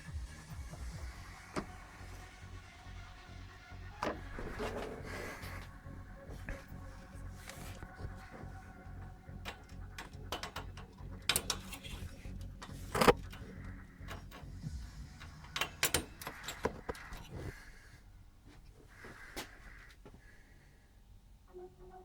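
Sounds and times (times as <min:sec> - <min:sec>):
tools and metal parts clinking: 0:04.0 - 0:17.6.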